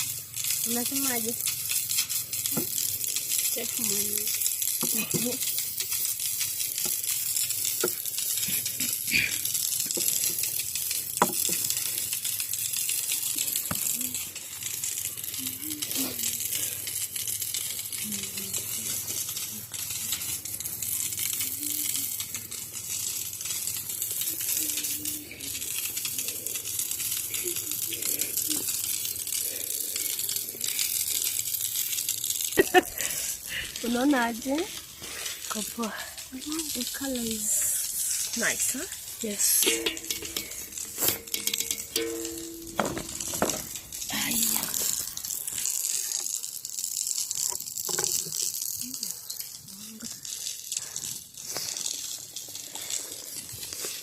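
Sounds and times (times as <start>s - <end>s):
dough sizzling in hot oil: 0.0s - 54.0s.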